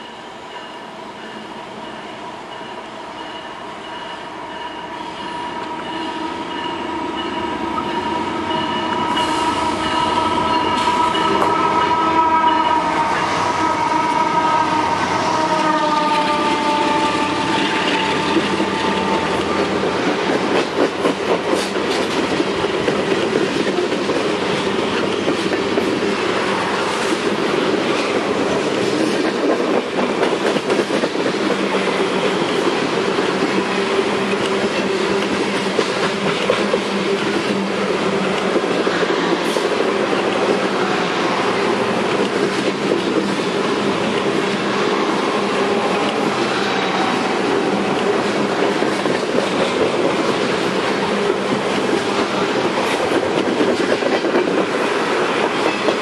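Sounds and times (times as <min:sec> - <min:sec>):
diesel locomotives passing: 0:00.0 - 0:56.0
locomotive horn tones: 0:04.7 - 0:19.8
freight cars rumbling on rails: 0:05.0 - 0:56.0.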